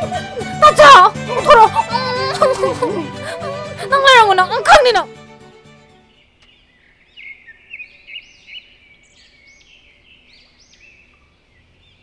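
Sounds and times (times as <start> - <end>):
small birds chirping: 5.9 - 12.0.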